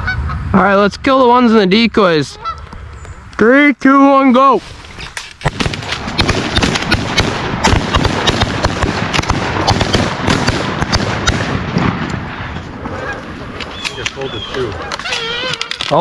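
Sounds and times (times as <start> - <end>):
rapid shotgun fire: 5.4 - 12.4.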